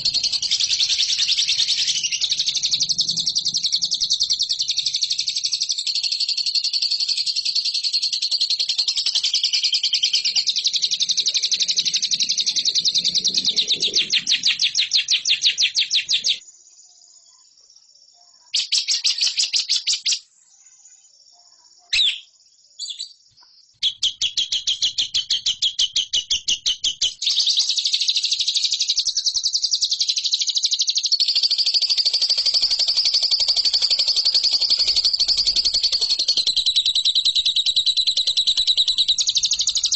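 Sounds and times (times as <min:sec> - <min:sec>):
lovebird chattering trills: 0:00.0 - 0:05.6, 0:31.3 - 0:39.9.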